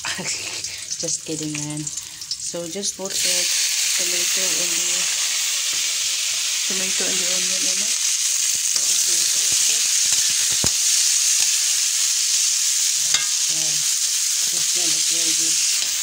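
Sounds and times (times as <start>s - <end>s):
vegetables sizzling in hot oil: 0.0s - 16.0s
spatula tapping on pan: 13.1s - 13.4s
spatula stirring in wok: 13.1s - 13.5s.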